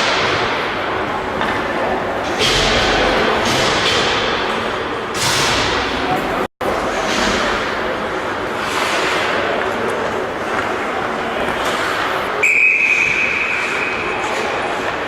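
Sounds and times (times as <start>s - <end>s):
referee's whistle long blast: 12.4s - 13.5s.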